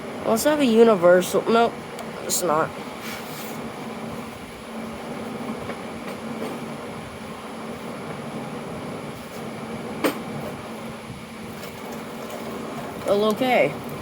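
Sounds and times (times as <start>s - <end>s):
mechanical room hum: 0.0s - 14.0s.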